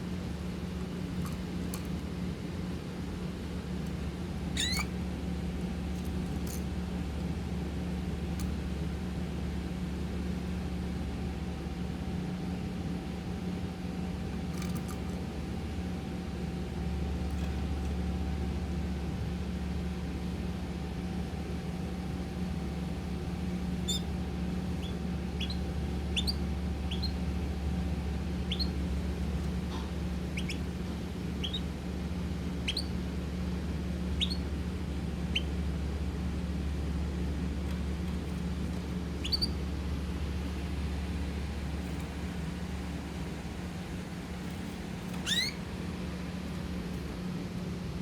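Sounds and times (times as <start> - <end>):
steady low hum: 0.0 - 48.0
birds chirping: 4.6 - 4.9, 23.8 - 27.4, 28.3 - 31.8, 32.4 - 33.0, 34.1 - 34.5, 35.2 - 35.6, 37.7 - 39.9, 41.1 - 47.1.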